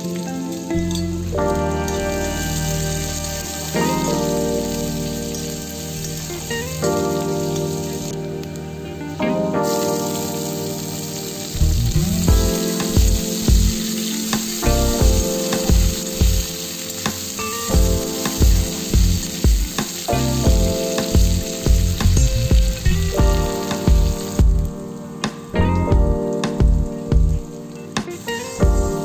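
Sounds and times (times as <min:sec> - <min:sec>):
vegetables sizzling in hot oil: 0:00.0 - 0:24.8, 0:26.7 - 0:29.0
background music with beat: 0:09.2 - 0:29.0.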